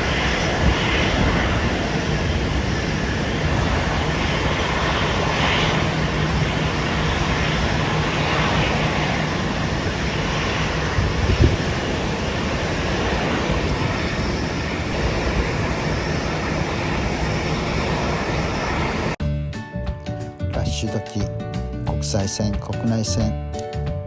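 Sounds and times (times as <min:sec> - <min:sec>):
jet aircraft engine rush: 0:00.0 - 0:19.2
wind buffeting microphone: 0:00.0 - 0:19.2.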